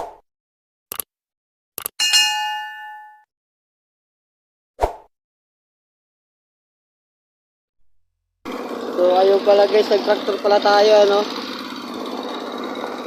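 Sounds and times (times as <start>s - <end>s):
short clicks: 1.8s - 2.1s
bell ding: 2.0s - 3.2s.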